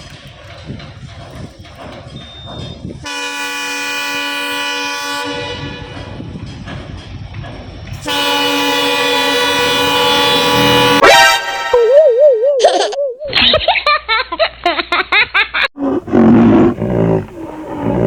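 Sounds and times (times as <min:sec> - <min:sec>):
low rumble of moving train: 0:00.0 - 0:11.0
train horn blasts: 0:03.0 - 0:06.2, 0:08.0 - 0:11.7.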